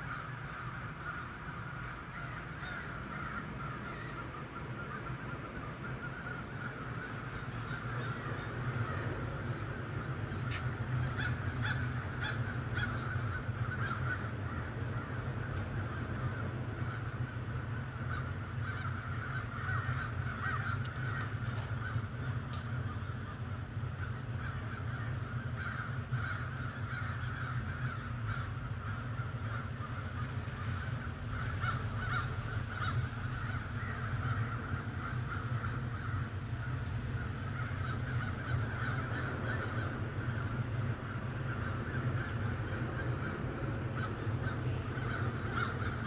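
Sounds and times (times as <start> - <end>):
birds calling: 18.1 - 46.0.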